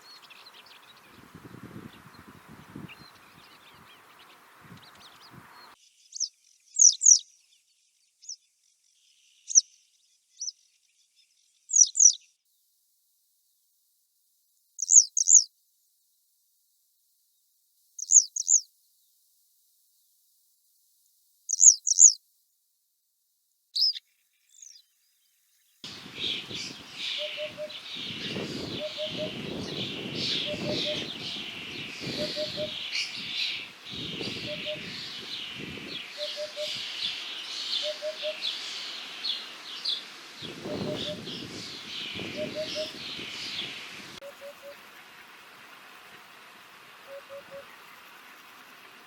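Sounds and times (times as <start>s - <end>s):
chorus of songbirds: 0.0s - 12.4s, 14.8s - 15.5s, 18.0s - 18.7s, 21.5s - 22.2s, 23.8s - 49.0s
wagtail call notes: 25.9s - 45.1s, 46.9s - 47.8s
hoopoe calling: 25.9s - 45.4s, 47.0s - 47.9s.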